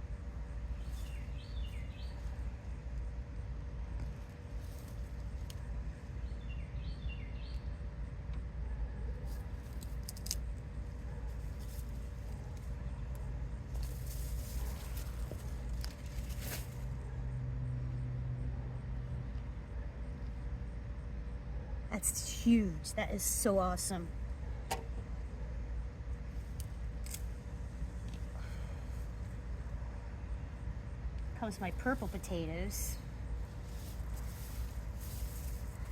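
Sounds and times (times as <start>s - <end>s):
distant traffic rumble: 0.0s - 35.9s
bird chirping: 0.8s - 2.4s, 6.2s - 7.8s
hands digging through soil: 13.7s - 16.9s.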